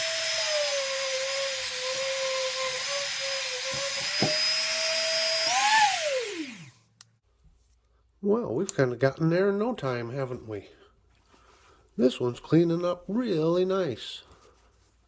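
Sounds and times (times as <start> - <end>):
rotary tool whining: 0.0 - 6.8
rotary tool winding down: 0.0 - 6.8.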